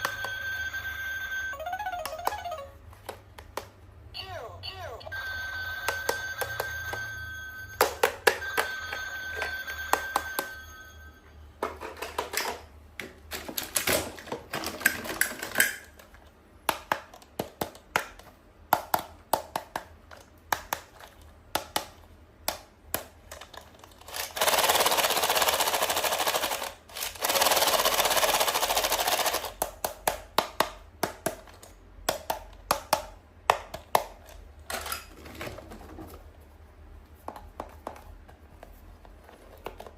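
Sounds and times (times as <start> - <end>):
ringing tone: 0.0 - 2.7, 5.1 - 11.4
plastic toys clicking and tapping: 11.9 - 35.0.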